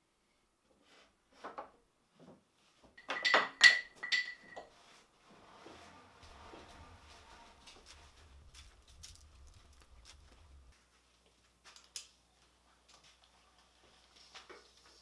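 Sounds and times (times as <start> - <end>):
low hum: 5.3 - 11.4.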